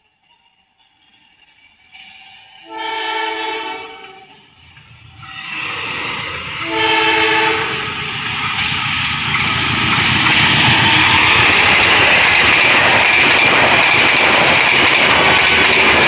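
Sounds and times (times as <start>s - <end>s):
train passing on rails: 0.0s - 16.0s
locomotive horn blast: 2.7s - 4.3s, 5.2s - 8.2s.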